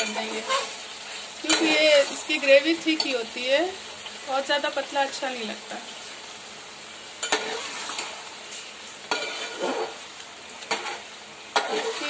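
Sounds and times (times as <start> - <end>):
metal spatula scraping a pot: 0.0 - 0.8, 7.2 - 10.0, 10.7 - 12.0
stew sizzling in a pot: 0.0 - 12.0.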